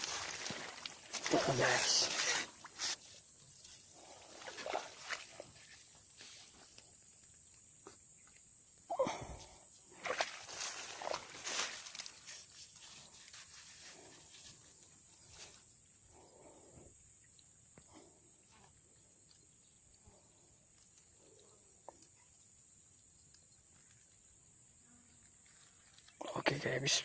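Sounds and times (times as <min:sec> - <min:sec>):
faint high insect drone: 0:00.0 - 0:27.0
soft rustles and light ticks: 0:10.6 - 0:16.0.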